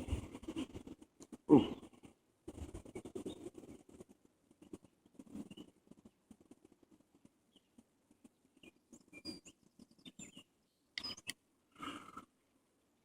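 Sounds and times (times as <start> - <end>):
faint high chirps: 8.6 - 11.4.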